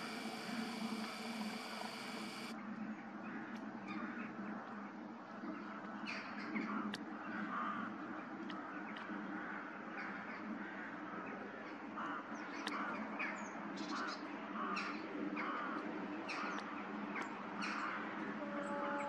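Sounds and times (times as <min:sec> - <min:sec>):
birds calling: 0:00.0 - 0:02.5
steady low hum: 0:00.0 - 0:02.5.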